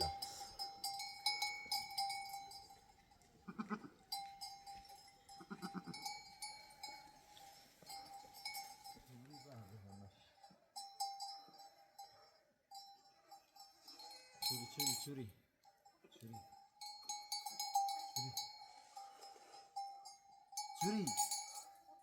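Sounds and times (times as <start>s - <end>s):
animal bells clinking: 0.0s - 22.0s
goat bleating: 3.5s - 4.0s, 5.4s - 6.0s.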